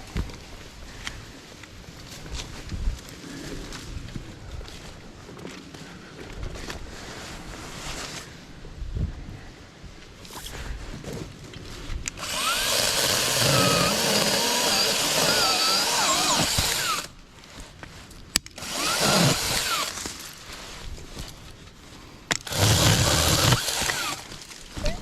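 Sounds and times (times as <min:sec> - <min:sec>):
mini chainsaw cutting wood: 0:12.1 - 0:17.1, 0:18.5 - 0:20.2, 0:22.3 - 0:24.5.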